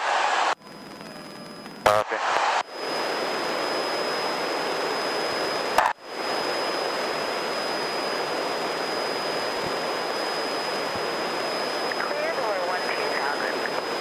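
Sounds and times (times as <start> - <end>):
thin high whine: 0.0 - 14.0.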